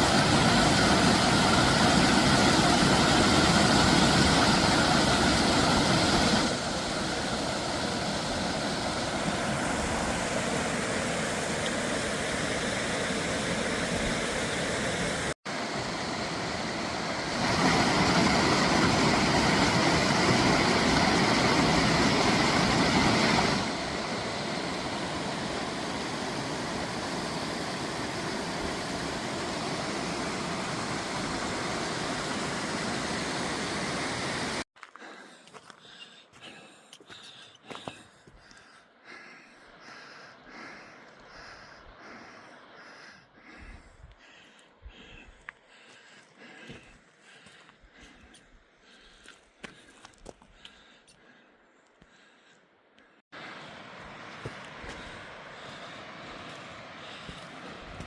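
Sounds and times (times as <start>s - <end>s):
stream water rushing: 0.0s - 34.7s, 53.4s - 58.0s.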